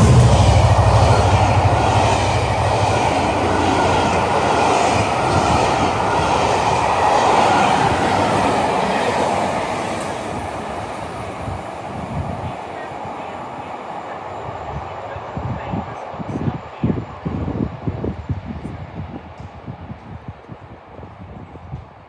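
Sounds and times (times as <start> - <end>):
train engine drone: 0.0 - 22.0
train wheels rumbling on rail: 0.0 - 22.0.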